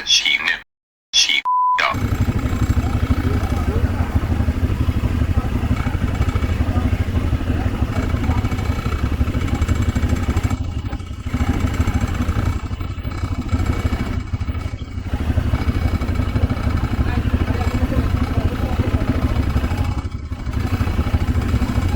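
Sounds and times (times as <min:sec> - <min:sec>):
atv engine running: 0:01.9 - 0:21.9
clatter: 0:02.0 - 0:21.9.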